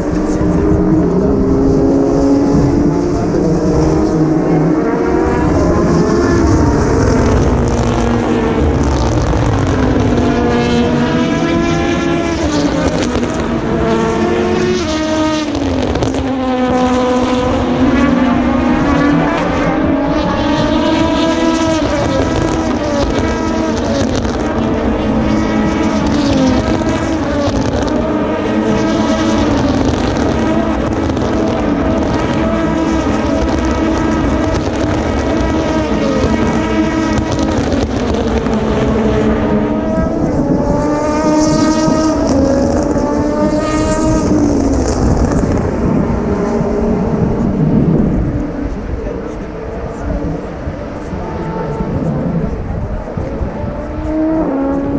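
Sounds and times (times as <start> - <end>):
race cars accelerating: 0.0 - 54.9.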